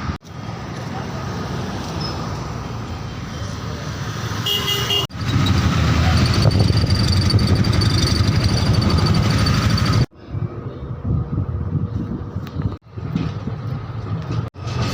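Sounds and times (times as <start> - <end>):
road traffic noise: 0.0 - 14.9
vehicle horn tooting: 4.4 - 5.1.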